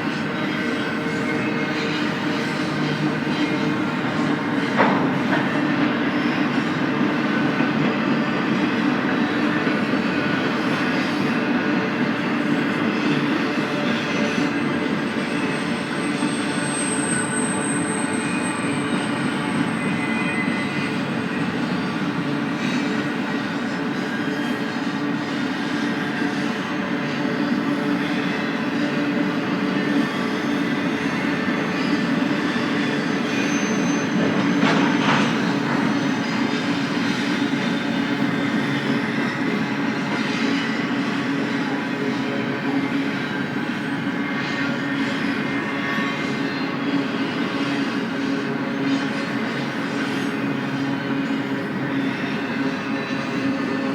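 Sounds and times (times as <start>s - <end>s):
train wheels rumbling on rail: 0.0s - 53.9s
train cars clattering: 30.7s - 44.0s.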